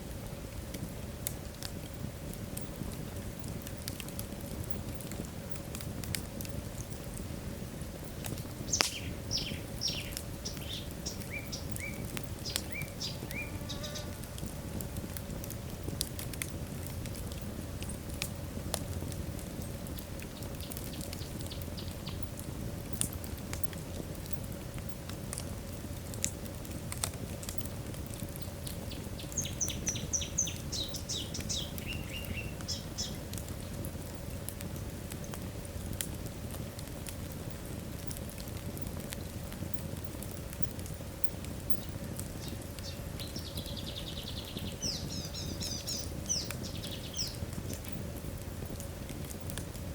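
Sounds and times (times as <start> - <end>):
log fire crackling: 0.0 - 49.9
low fire rumble: 0.0 - 49.9.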